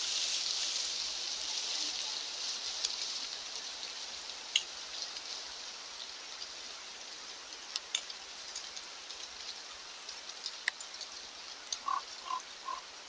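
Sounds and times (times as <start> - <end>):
light rain hissing: 0.0 - 13.0
raindrop ticks: 2.8 - 5.3, 7.4 - 12.8.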